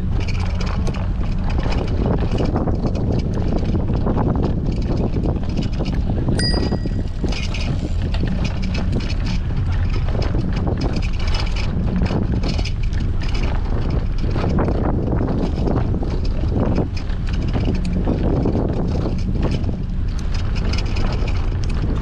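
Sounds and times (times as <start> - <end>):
tyre and road rumble: 0.0 - 22.0
wind buffeting microphone: 0.0 - 22.0
bicycle bell ringing: 6.4 - 7.8.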